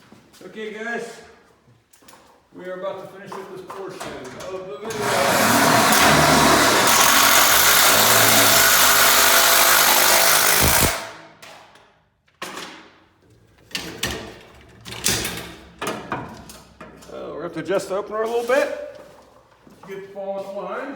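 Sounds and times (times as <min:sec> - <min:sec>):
electric motor humming: 0:04.9 - 0:11.0.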